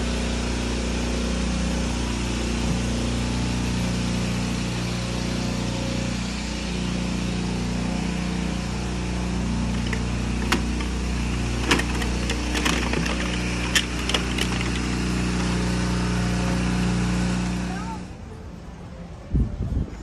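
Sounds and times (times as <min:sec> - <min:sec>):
vehicle engine running: 0:00.0 - 0:18.0
sharp clicks or knocks: 0:09.7 - 0:15.0.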